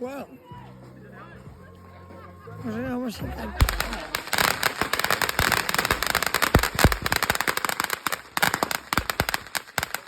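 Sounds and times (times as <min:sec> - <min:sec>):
firecracker pops and crackles: 0:03.6 - 0:10.0
loud fireworks bangs: 0:03.6 - 0:10.0.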